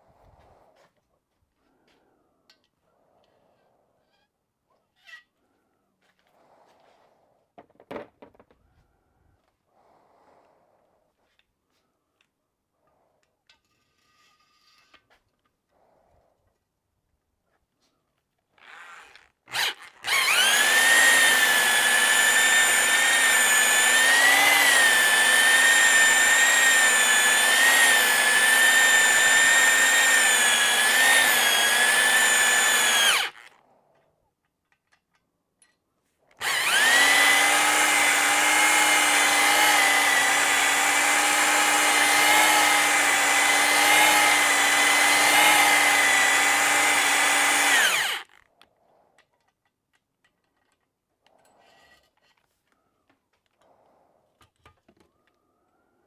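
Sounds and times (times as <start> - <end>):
electric drill motor whine: 18.7 - 33.5, 36.4 - 48.4.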